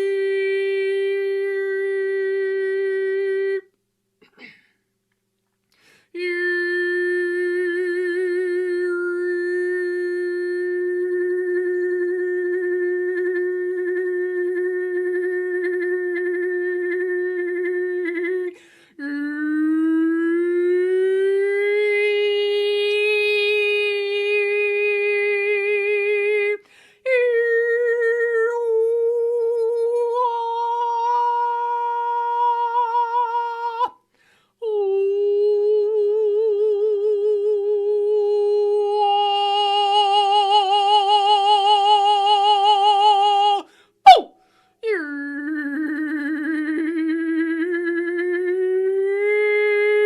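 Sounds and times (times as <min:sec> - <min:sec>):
person singing held vowel tones: 0:34.6 - 0:50.0.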